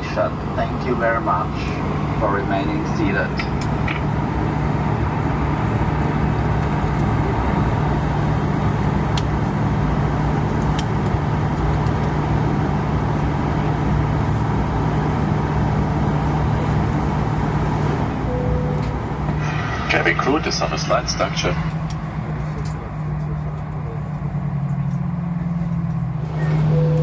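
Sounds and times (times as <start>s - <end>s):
low engine hum: 0.0s - 27.0s
cabin air rushing: 16.7s - 22.6s.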